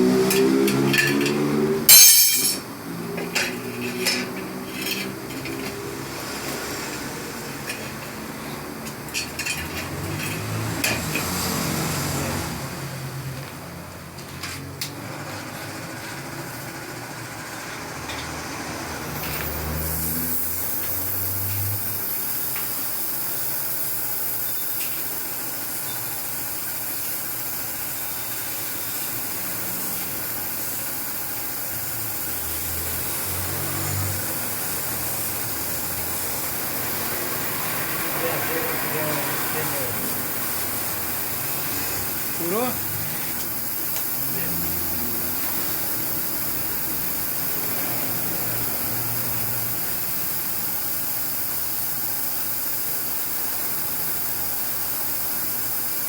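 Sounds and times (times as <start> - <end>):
metal tyre levers clinking on rim: 0.3 - 2.7
steady high hiss: 19.0 - 56.0.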